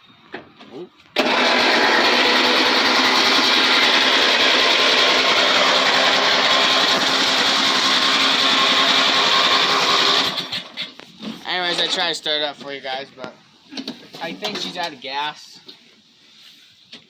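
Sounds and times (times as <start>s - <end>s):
starter motor cranking engine: 1.2s - 11.0s.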